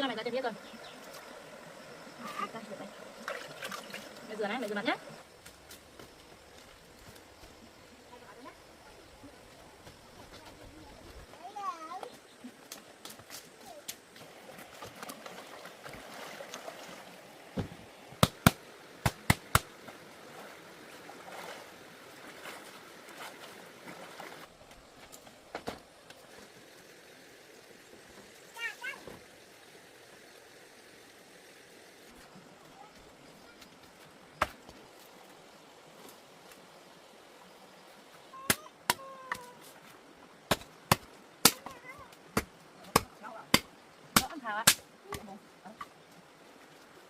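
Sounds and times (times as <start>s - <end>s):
faint trickling water: 0.0s - 5.3s, 13.6s - 18.1s.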